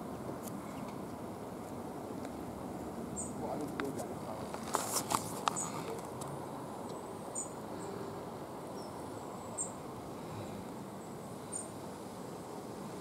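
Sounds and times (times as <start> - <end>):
low background hiss and rumble: 0.0 - 13.0
small birds chirping: 2.2 - 11.9.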